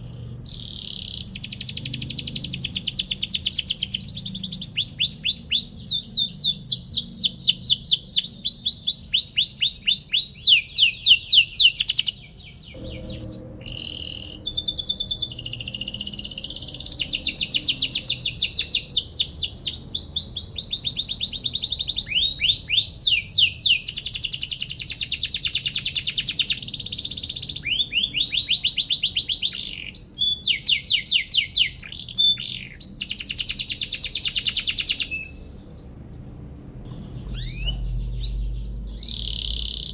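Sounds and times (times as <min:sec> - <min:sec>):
canary singing fast trills: 0:00.0 - 0:39.9.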